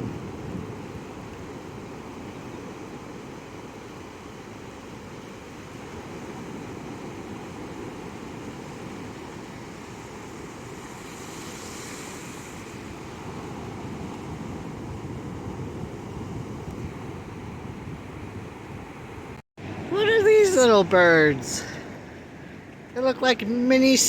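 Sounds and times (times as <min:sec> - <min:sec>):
wind on microphone: 0:00.0 - 0:02.9, 0:06.2 - 0:20.5
surf washing onto sandy beach: 0:00.0 - 0:24.0.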